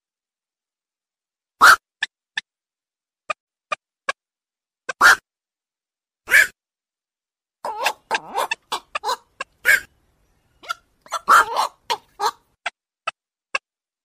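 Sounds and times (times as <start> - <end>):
heron barking calls: 1.6 - 1.8, 4.9 - 5.2, 6.3 - 6.5, 7.6 - 12.5.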